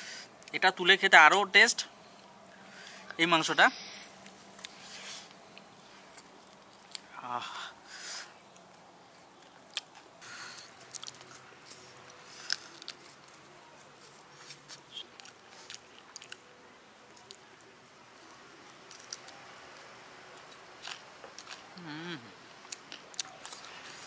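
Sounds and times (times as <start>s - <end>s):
person chewing crispy food: 4.2s - 7.2s, 8.4s - 17.7s, 18.5s - 24.0s.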